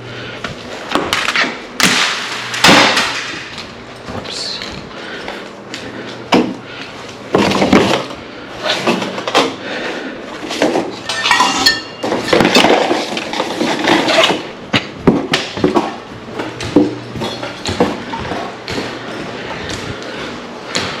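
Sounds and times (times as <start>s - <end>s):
faint steady hum: 0.0s - 21.0s
hard objects knocking and clattering: 7.3s - 8.2s, 10.4s - 19.4s
ringing metallic clink: 11.1s - 12.0s.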